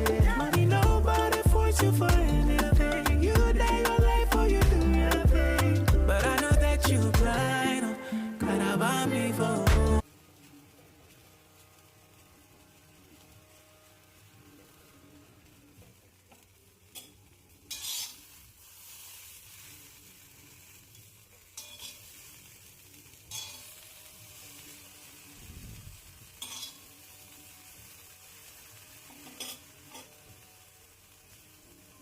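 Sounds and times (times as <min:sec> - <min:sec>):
peas sizzling in hot oil: 0:00.0 - 0:32.0
spoon scraping and clinking pan: 0:16.9 - 0:18.2, 0:21.6 - 0:22.1, 0:23.3 - 0:23.7, 0:26.4 - 0:26.8, 0:29.2 - 0:30.2.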